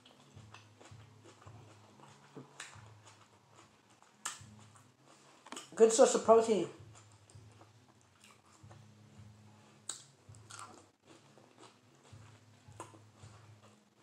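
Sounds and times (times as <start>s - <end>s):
chewing lettuce with crunches: 0.0s - 14.0s.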